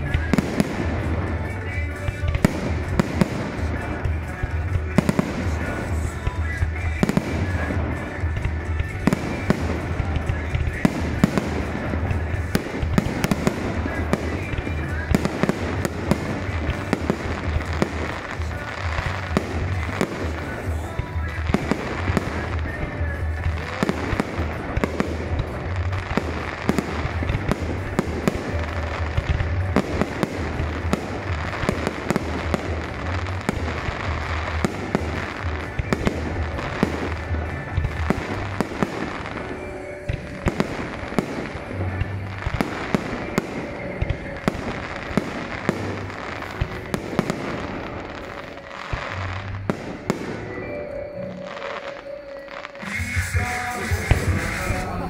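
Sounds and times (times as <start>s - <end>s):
fireworks bursting and crackling: 0.0s - 55.0s
music playing: 0.0s - 55.0s.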